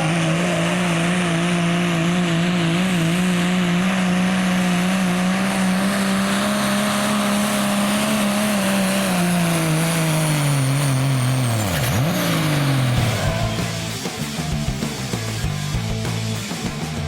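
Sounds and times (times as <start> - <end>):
diesel truck engine revving: 0.0 - 17.0
faint high turbo whistle: 9.1 - 14.2.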